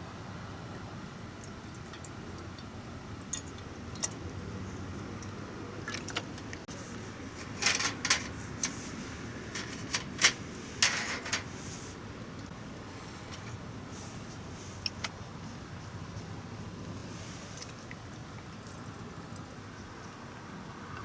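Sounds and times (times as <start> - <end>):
camp cookware clinking: 7.3 - 8.8, 9.5 - 11.6.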